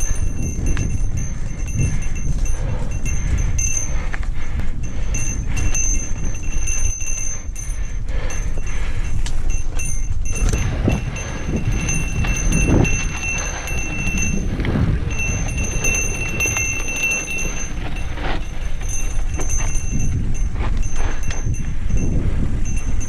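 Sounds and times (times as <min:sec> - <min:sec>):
bike rattling and knocking: 0:00.0 - 0:23.0
wind rumbling on microphone: 0:00.0 - 0:23.0
tyres crunching on dirt: 0:10.2 - 0:21.6.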